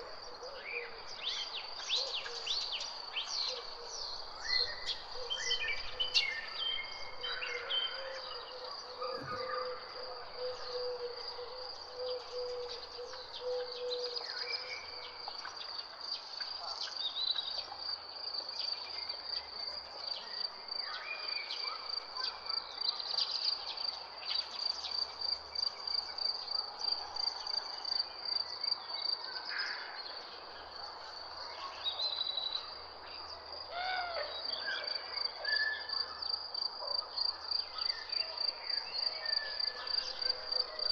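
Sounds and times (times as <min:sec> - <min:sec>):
birds calling and chirping: 0:00.0 - 0:15.0.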